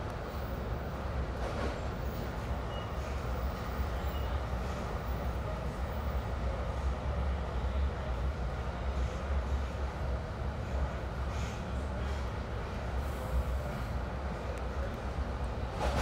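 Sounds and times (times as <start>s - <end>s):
rumble of wheels on rail: 0.0s - 16.0s.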